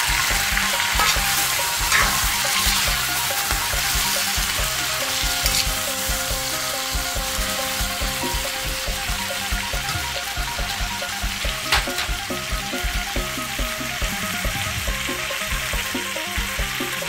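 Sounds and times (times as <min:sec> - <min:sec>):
spatula tossing in wok: 0:00.0 - 0:08.6
background music with beat: 0:00.0 - 0:17.0
green beans sizzling in wok: 0:00.0 - 0:17.0.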